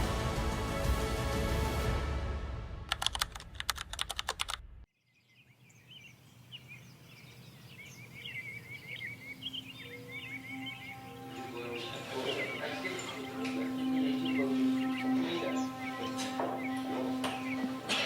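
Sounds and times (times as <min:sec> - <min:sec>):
music: 0:00.0 - 0:03.0, 0:10.2 - 0:18.0
rapid sharp clicks: 0:02.9 - 0:04.7
birds chirping: 0:04.9 - 0:18.0.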